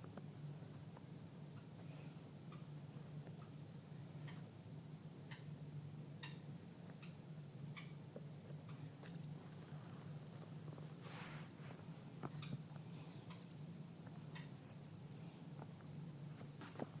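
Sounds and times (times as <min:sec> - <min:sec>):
steady low hum: 0:00.0 - 0:17.0
small bird chirping trills: 0:01.6 - 0:02.7, 0:03.3 - 0:05.5, 0:08.7 - 0:09.6, 0:11.1 - 0:11.7, 0:12.4 - 0:17.0.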